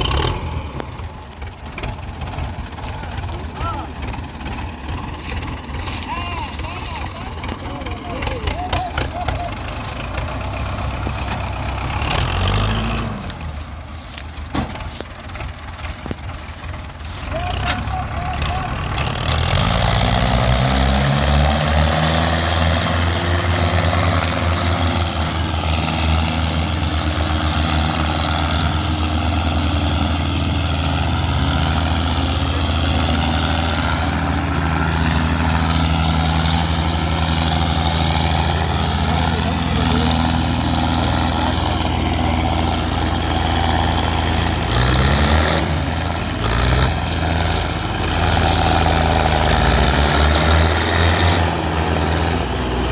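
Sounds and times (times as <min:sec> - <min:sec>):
tractor diesel engine revving: 0:00.0 - 0:52.9.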